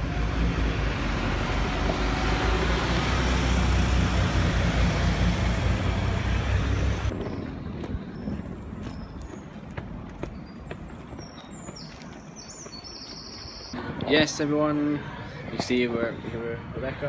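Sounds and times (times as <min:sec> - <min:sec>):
street traffic noise: 0:00.0 - 0:17.0
wind buffeting microphone: 0:05.4 - 0:17.0.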